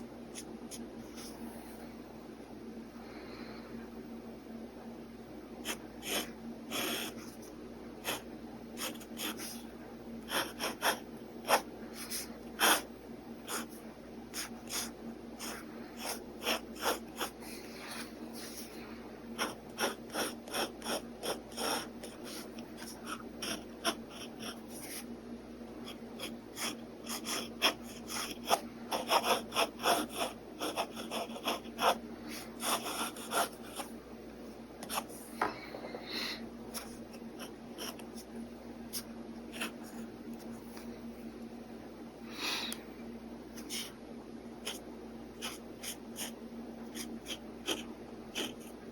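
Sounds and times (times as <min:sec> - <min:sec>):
faint steady hum: 0:00.0 - 0:48.9
pen scratching on paper: 0:05.6 - 0:18.8, 0:19.4 - 0:25.1, 0:25.8 - 0:33.9, 0:34.8 - 0:35.2, 0:36.7 - 0:38.3, 0:38.9 - 0:40.1, 0:43.6 - 0:43.9, 0:44.6 - 0:44.8, 0:45.4 - 0:48.9.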